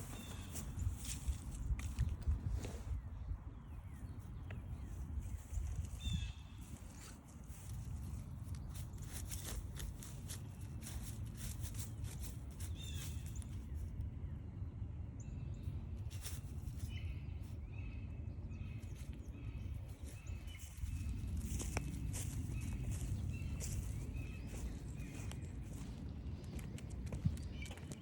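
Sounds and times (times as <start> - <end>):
footsteps crunching on trail: 0.0 - 2.8, 5.2 - 13.8, 16.1 - 17.0, 18.9 - 28.0
bird calls and chirps: 0.0 - 14.5, 15.1 - 28.0.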